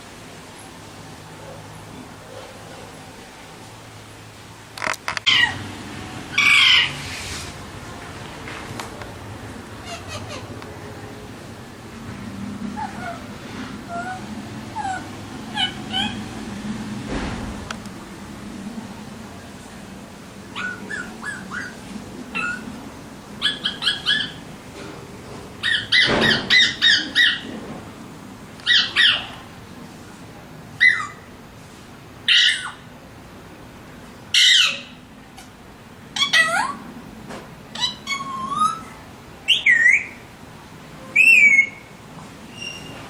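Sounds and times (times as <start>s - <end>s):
parrot squawking and calling: 5.2s - 5.6s, 6.3s - 7.0s, 9.6s - 10.6s, 12.6s - 16.4s, 20.4s - 22.8s, 23.4s - 24.5s, 25.6s - 27.5s, 28.6s - 29.4s, 30.8s - 31.3s, 32.3s - 32.9s, 34.3s - 35.1s, 36.2s - 36.8s, 37.7s - 40.2s, 41.1s - 43.0s.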